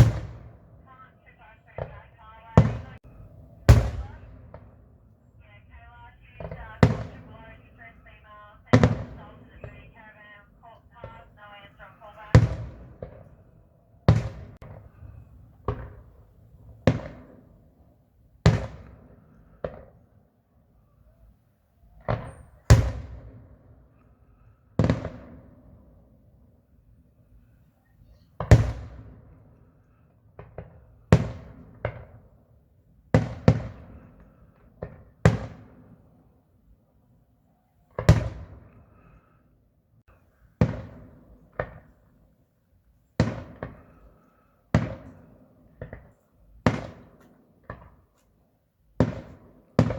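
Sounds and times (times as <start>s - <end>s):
fireworks bangs with echo: 0.0s - 17.8s, 18.4s - 20.0s, 21.9s - 23.8s, 24.8s - 26.1s, 28.4s - 29.6s, 30.2s - 32.4s, 33.1s - 36.2s, 37.9s - 39.1s, 40.1s - 42.2s, 43.2s - 48.1s, 49.0s - 49.9s.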